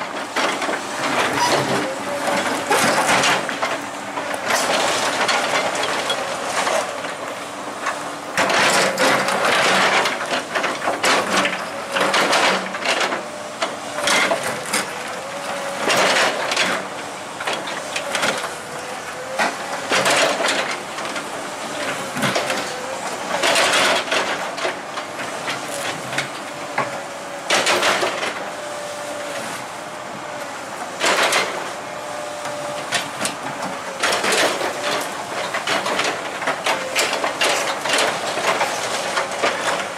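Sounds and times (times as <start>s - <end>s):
heavy machinery engine whining: 0.0s - 39.9s
loud metal clanks and scraping: 0.4s - 3.8s.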